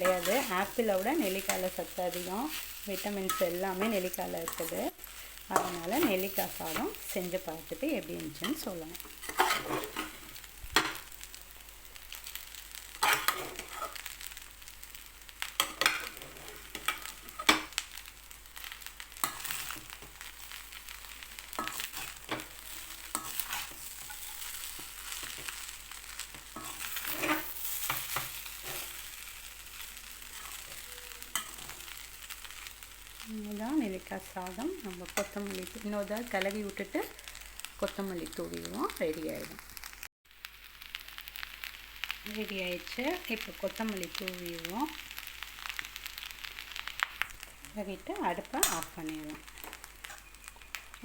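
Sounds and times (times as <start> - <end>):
faint sizzle: 0.0 - 51.0
spoon scraping rice in a pan: 8.5 - 11.1, 13.0 - 14.1, 21.5 - 25.7, 26.4 - 29.2, 29.8 - 32.7, 48.6 - 50.4.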